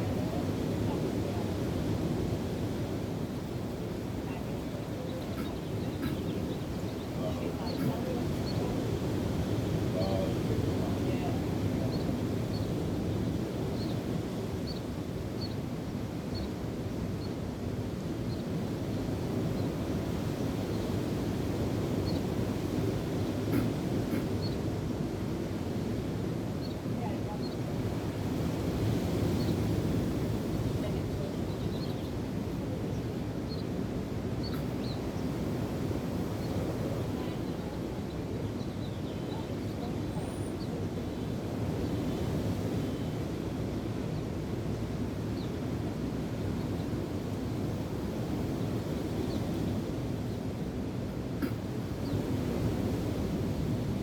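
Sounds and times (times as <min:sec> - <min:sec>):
wind: 0:00.0 - 0:54.0
faint bird chirps: 0:05.0 - 0:08.6.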